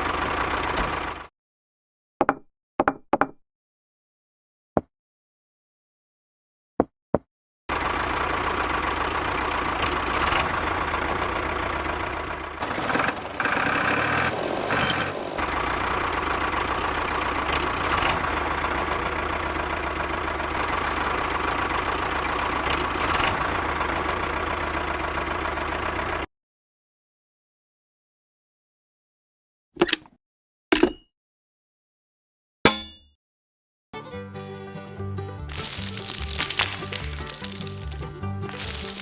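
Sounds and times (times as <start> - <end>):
engine running steadily: 0.0 - 1.3, 7.7 - 26.3, 35.5 - 39.0.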